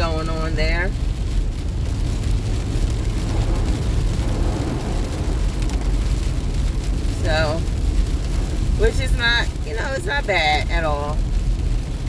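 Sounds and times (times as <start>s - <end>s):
car cabin rumble: 0.0s - 12.0s
tyre hiss on wet road: 1.1s - 10.6s.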